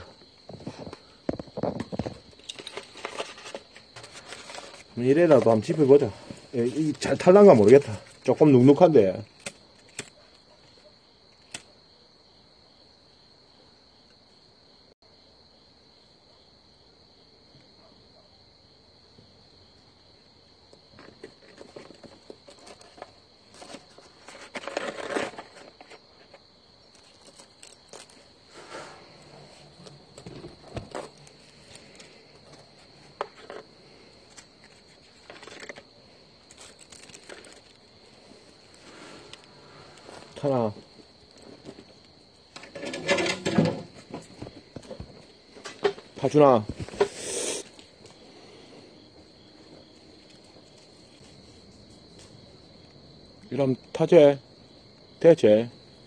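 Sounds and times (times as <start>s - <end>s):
insects trilling: 0.0s - 56.0s
kindling rustling and crackling: 0.5s - 10.4s, 20.9s - 48.2s.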